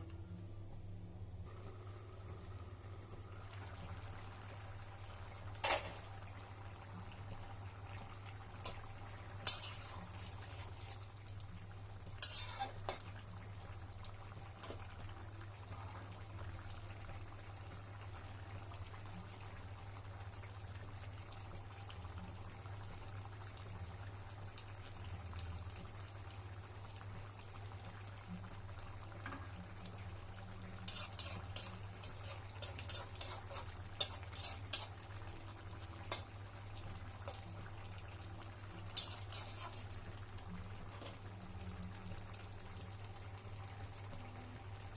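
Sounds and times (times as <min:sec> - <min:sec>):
curry sizzling in a pan: 0:01.4 - 0:44.9
metal spatula scraping pan: 0:09.4 - 0:11.0, 0:12.2 - 0:13.0, 0:30.9 - 0:35.0, 0:39.0 - 0:40.0.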